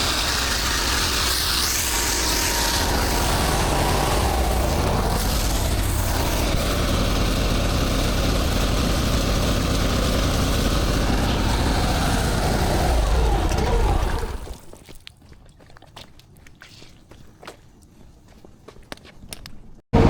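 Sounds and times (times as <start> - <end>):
pressure washer engine running: 0.0 - 14.7.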